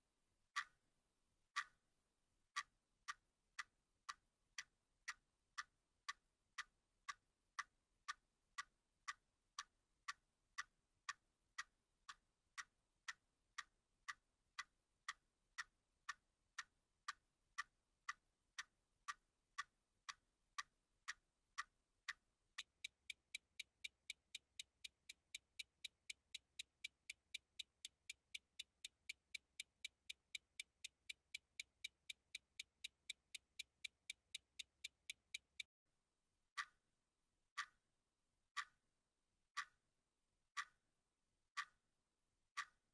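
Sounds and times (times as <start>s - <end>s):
clock ticking: 2.6s - 35.7s.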